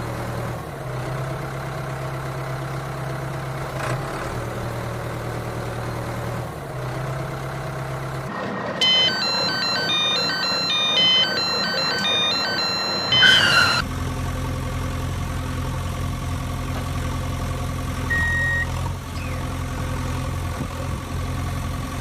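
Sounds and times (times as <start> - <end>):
engine hum: 0.0 - 22.0
chiming electronic beep tune: 8.8 - 13.8
short beep: 8.8 - 13.8, 18.1 - 18.7.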